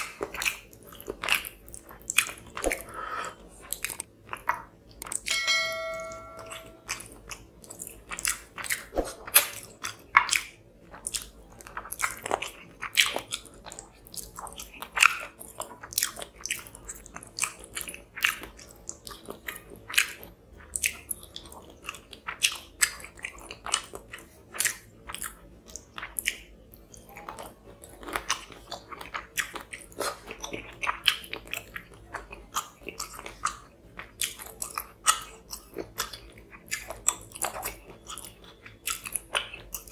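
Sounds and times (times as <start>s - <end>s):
close chewing and biting: 0.0s - 5.3s, 6.9s - 39.9s
wet mouth clicks and crunches: 3.7s - 5.3s.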